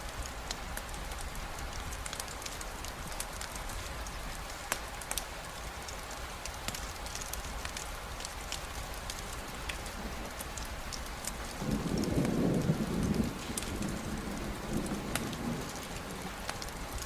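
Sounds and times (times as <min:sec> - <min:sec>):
rain hiss with drop ticks: 0:00.0 - 0:17.0
thunder rumbling: 0:11.5 - 0:17.0.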